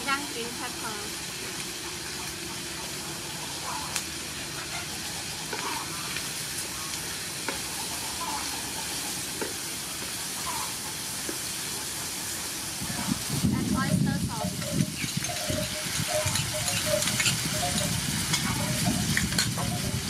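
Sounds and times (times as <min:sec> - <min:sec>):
food sizzling in oil: 0:00.0 - 0:20.0
spatula scraping and tapping pan: 0:14.5 - 0:19.8.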